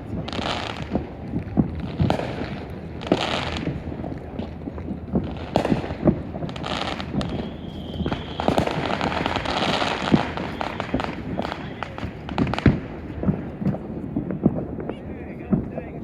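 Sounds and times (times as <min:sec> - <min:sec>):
fireworks bangs and booms: 0:00.0 - 0:16.0
fireworks crackling: 0:00.0 - 0:16.0
firework whistle: 0:05.2 - 0:13.8.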